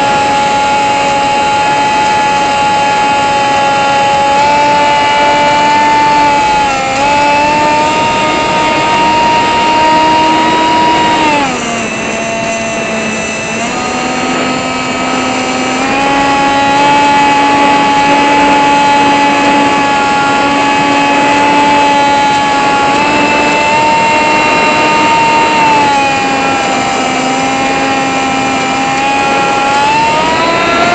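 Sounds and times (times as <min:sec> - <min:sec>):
small motor whining: 0:00.0 - 0:30.9.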